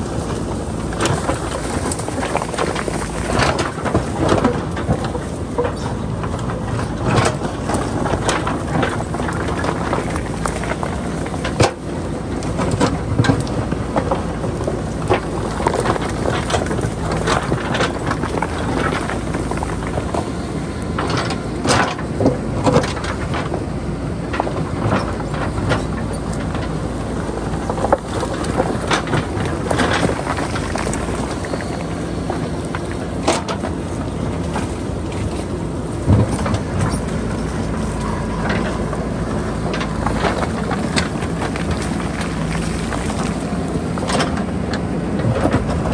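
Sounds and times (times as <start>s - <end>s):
diesel engine running: 0.0s - 45.9s
bucket clanking on rocks: 24.3s - 45.9s.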